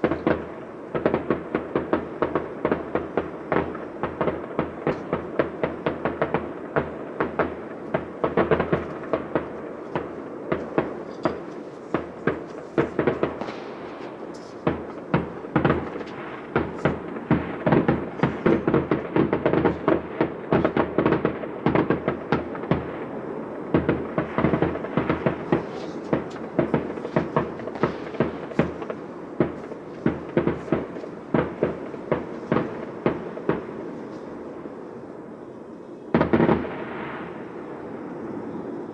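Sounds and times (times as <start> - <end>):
fireworks banging and crackling: 0.0 - 35.1, 36.1 - 38.8.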